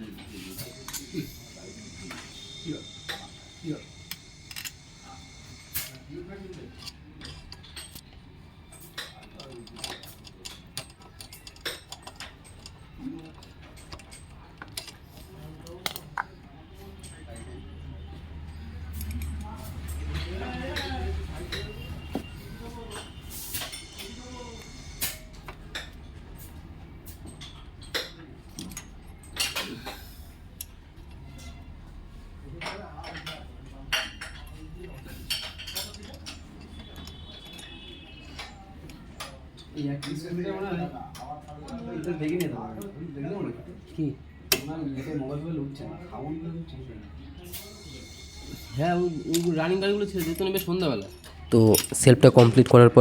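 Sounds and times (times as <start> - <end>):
faint voices: 0.0 - 25.7
metal tools clinking: 0.3 - 16.3, 47.8 - 52.6.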